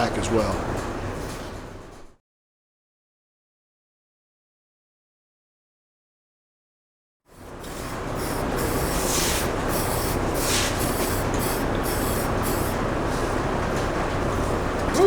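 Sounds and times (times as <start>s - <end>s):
low shop hum: 0.0s - 2.2s, 7.3s - 15.0s
aerosol spray can hissing: 8.2s - 12.8s.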